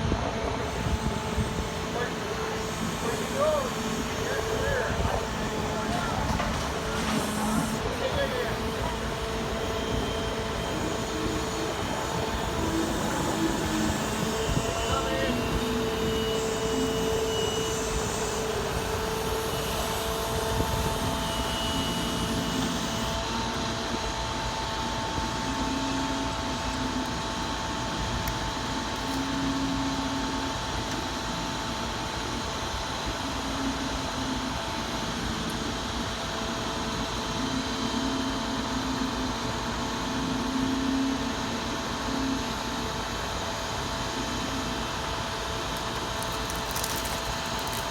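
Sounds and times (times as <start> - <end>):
truck engine and hydraulics drone: 0.0 - 47.9
high whining tones: 0.5 - 23.2.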